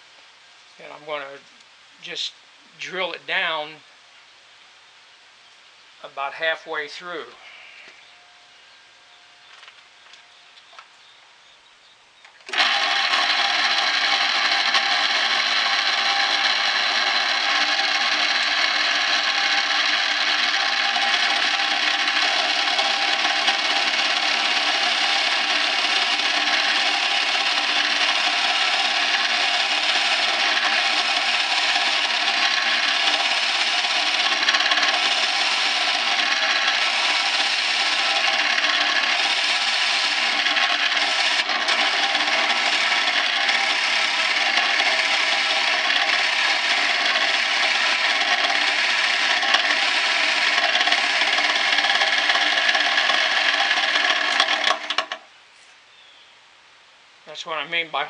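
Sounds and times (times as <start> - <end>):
drill press boring into wood: 12.4 - 55.3.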